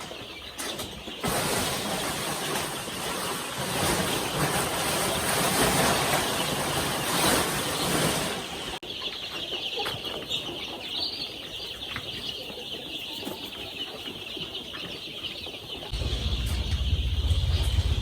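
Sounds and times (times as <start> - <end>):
chicks peeping: 0.0 - 18.0
low steady rumble: 15.9 - 18.0.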